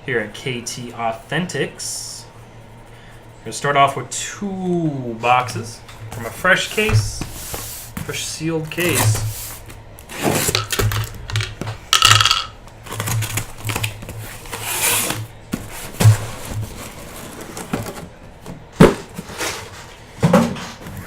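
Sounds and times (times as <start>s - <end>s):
cardboard boxes knocking and scraping: 13.0s - 21.0s.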